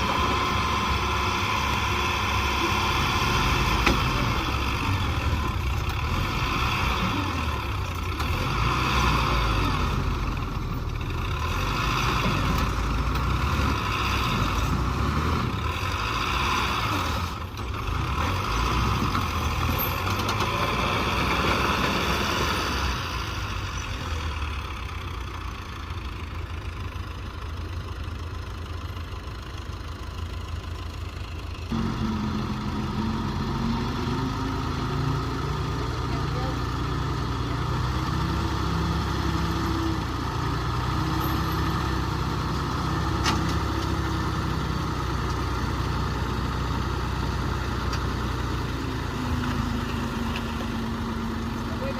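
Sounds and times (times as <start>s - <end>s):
heavy machinery diesel engines: 0.0s - 51.9s.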